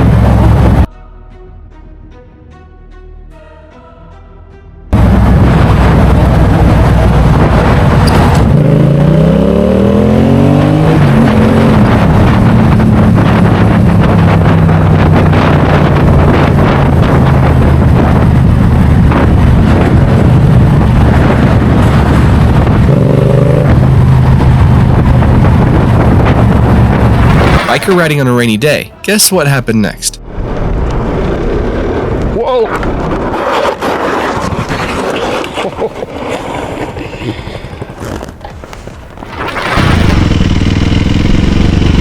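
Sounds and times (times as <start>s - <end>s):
heavy wind rush: 0.0s - 0.9s, 4.9s - 42.0s
motorcycle engine accelerating: 0.0s - 0.9s, 4.9s - 27.7s, 39.3s - 42.0s.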